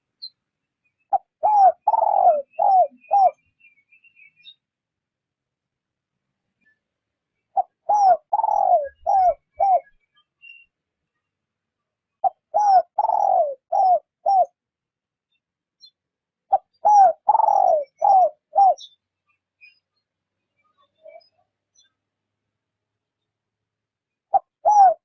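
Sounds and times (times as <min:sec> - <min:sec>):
dove cooing: 0:01.1 - 0:03.4, 0:07.5 - 0:10.0, 0:12.2 - 0:14.6, 0:16.5 - 0:18.9, 0:24.3 - 0:25.0.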